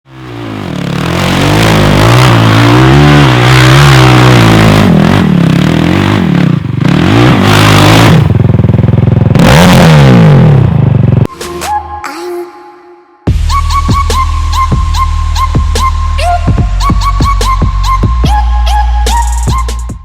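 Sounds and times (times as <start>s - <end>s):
quad bike engine revving: 0.0s - 11.3s.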